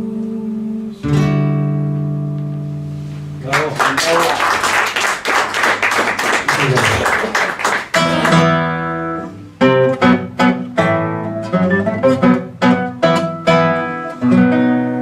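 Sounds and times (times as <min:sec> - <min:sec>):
acoustic guitar plucked chords: 0:00.0 - 0:03.8, 0:07.8 - 0:15.0.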